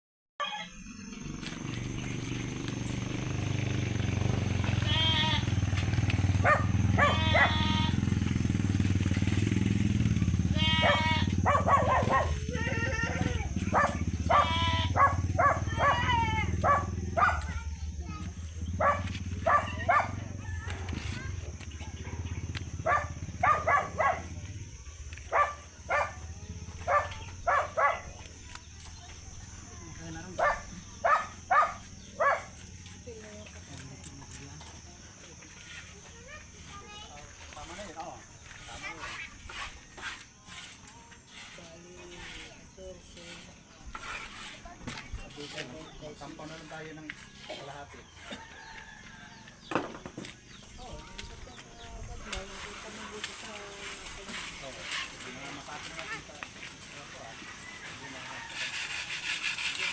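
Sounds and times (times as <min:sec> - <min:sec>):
dog barking: 0:06.4 - 0:07.7, 0:10.8 - 0:12.5, 0:13.7 - 0:17.6, 0:18.8 - 0:20.3, 0:21.9 - 0:24.4, 0:25.3 - 0:26.2, 0:26.8 - 0:28.2, 0:30.4 - 0:32.6.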